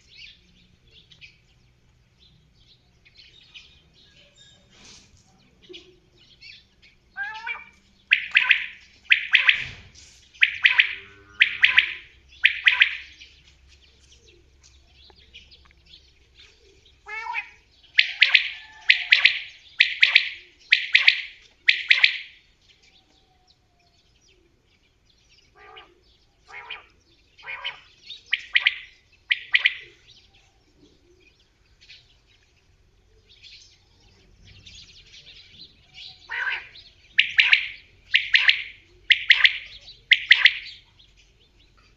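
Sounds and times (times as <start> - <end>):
quail calling: 7.1 - 13.3, 16.6 - 22.4, 25.5 - 30.1, 36.0 - 40.9.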